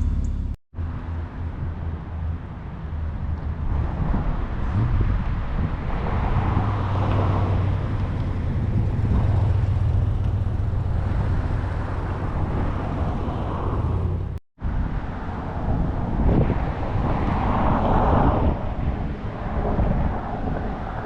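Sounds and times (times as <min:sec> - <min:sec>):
car engine droning: 0:00.0 - 0:01.7
road noise: 0:00.0 - 0:21.0.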